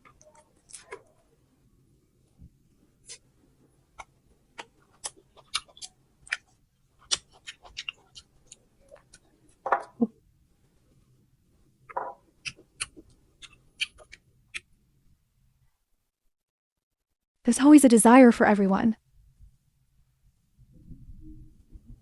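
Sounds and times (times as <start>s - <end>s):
chewing crunchy fruit: 3.9s - 9.6s
wet mouth sounds: 4.0s - 9.3s.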